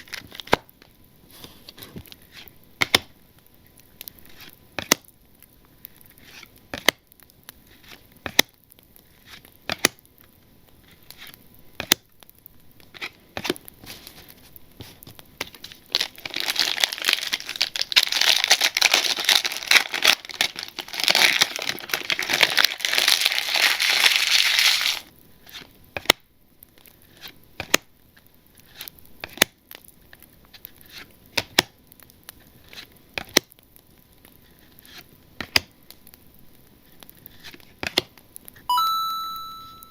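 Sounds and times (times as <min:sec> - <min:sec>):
plastic wrapper crinkling and tearing: 0:00.0 - 0:00.9, 0:12.8 - 0:25.7.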